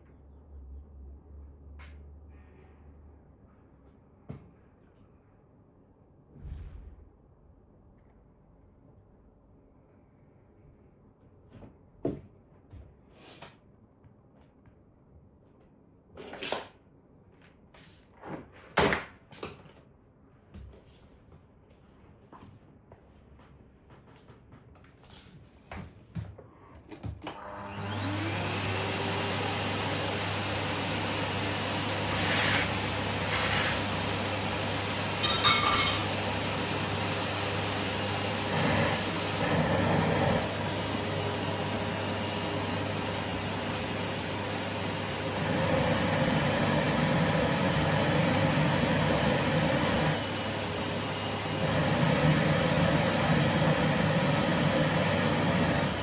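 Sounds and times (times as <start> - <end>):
vacuum cleaner motor humming: 27.2 - 56.0.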